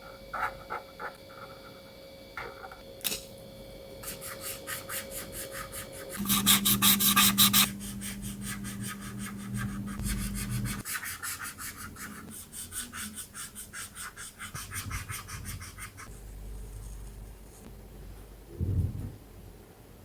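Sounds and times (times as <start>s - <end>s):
marker rubbing on paper: 4.0s - 16.3s.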